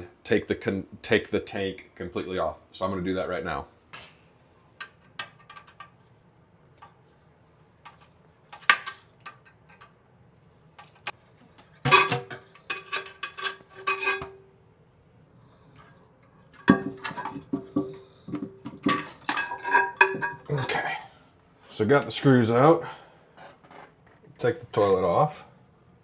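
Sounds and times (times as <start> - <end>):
hand tools clinking on metal: 11.9 - 14.4, 16.6 - 20.8.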